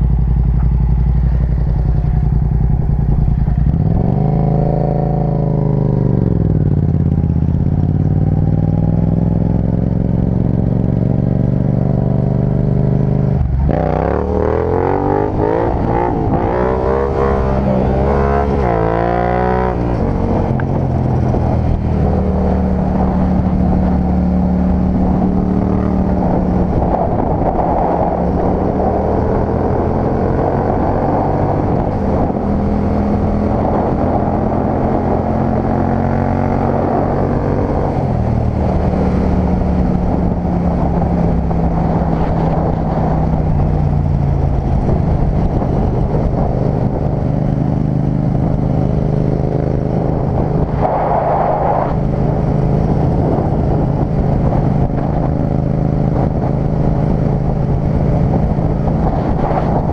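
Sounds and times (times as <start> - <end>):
motorcycle engine revving: 0.0 - 59.9
wind rush: 0.0 - 59.9.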